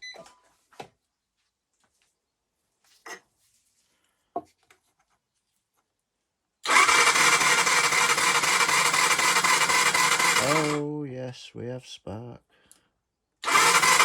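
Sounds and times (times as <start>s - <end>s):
engine cranking on starter: 6.6s - 10.8s, 13.4s - 14.0s.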